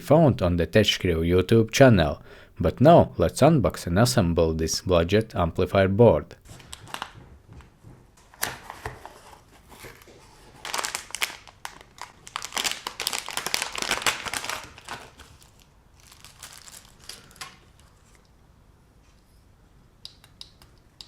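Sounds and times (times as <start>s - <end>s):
packaging crinkling and tearing: 6.4s - 7.2s, 8.3s - 18.3s.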